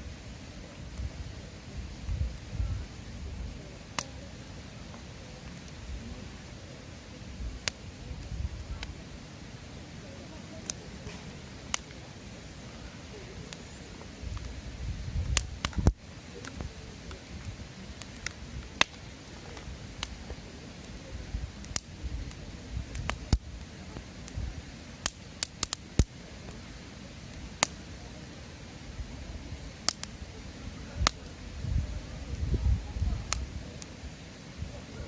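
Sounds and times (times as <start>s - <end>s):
wood fire crackling: 0.0s - 35.0s
pops and snaps of burning wood: 3.8s - 5.9s, 7.5s - 9.0s, 10.5s - 12.8s, 13.5s - 28.9s, 29.6s - 30.3s, 31.0s - 31.4s, 32.3s - 34.6s.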